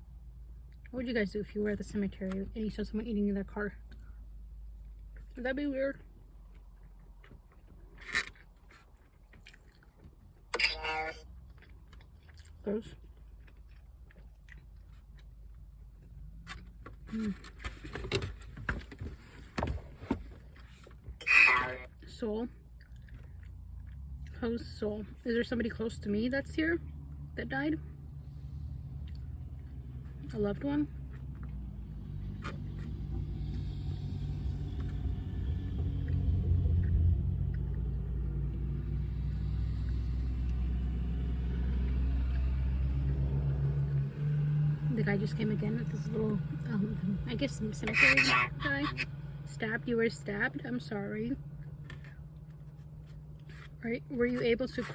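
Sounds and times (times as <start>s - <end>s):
low steady hum: 0.0s - 54.9s
vehicle engine rumble: 0.0s - 54.9s
chewing: 6.0s - 10.5s, 11.3s - 17.4s, 22.7s - 24.4s, 29.0s - 30.3s.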